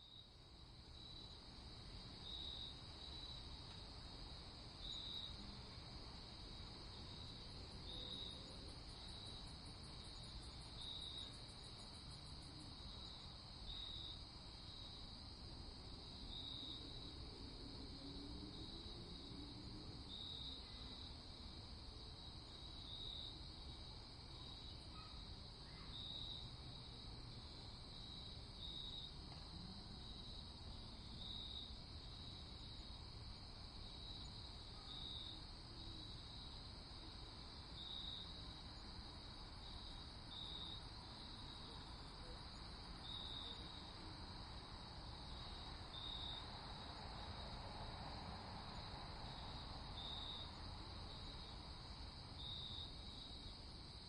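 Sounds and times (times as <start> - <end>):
crickets chirping: 0.0 - 54.0
faint low hiss: 0.0 - 54.0.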